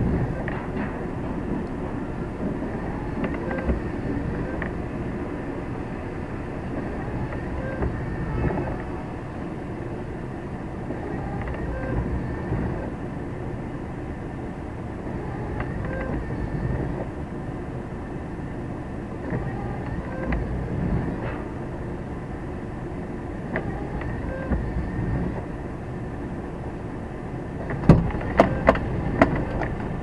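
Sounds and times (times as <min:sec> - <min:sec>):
clanks and rattles: 0:00.0 - 0:04.8
truck engine and road noise: 0:00.0 - 0:30.0.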